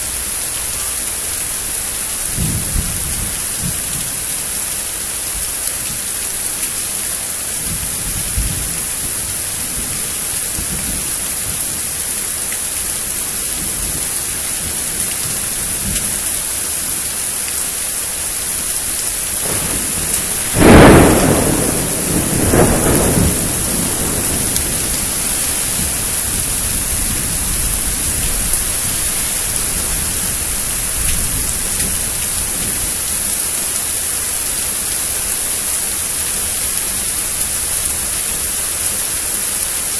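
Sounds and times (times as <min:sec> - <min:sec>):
rain hissing down: 0:00.0 - 0:39.9
loud thunderclap: 0:02.3 - 0:04.0, 0:19.4 - 0:32.9.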